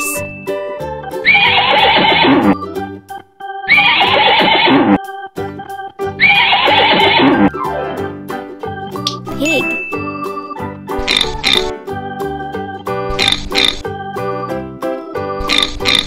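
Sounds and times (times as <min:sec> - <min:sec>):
light background music: 0:00.0 - 0:04.4, 0:05.0 - 0:16.0
horse whinnying: 0:01.3 - 0:02.6, 0:03.7 - 0:05.0, 0:06.2 - 0:07.5.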